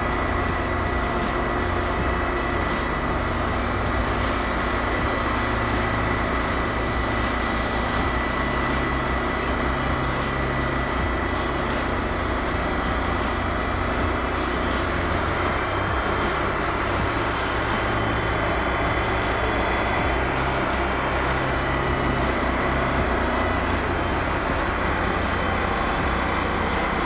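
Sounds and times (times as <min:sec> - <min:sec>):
band sawmill engine running: 0:00.0 - 0:27.0
thin high whine: 0:00.0 - 0:27.0.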